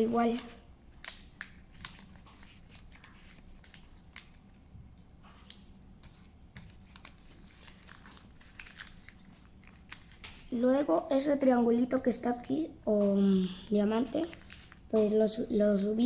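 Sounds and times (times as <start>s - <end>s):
paper rustling and crinkling: 0.0s - 4.5s, 5.2s - 10.6s, 14.0s - 16.0s.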